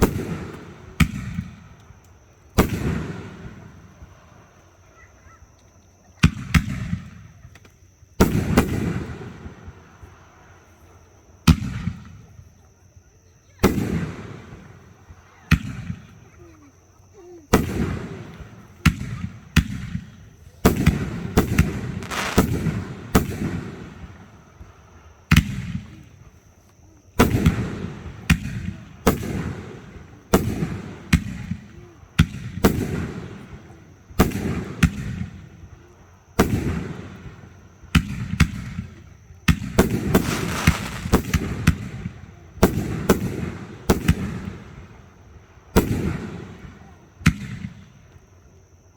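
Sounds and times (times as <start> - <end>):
fireworks bursting with crackle: 17.5 - 26.2, 36.4 - 45.1.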